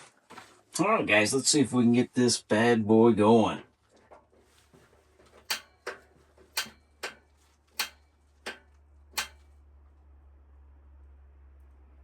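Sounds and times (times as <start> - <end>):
piezo igniter clicking: 5.5 - 7.2, 7.8 - 9.4.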